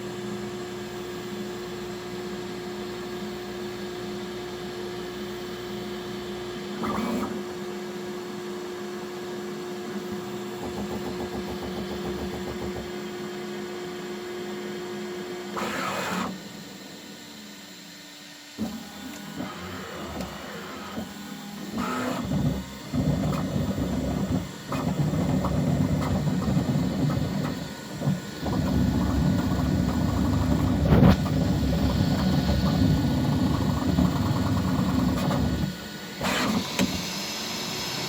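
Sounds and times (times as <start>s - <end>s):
printer movement sounds: 6.7s - 7.6s, 15.5s - 16.6s, 18.6s - 37.1s
fans humming: 18.6s - 38.0s.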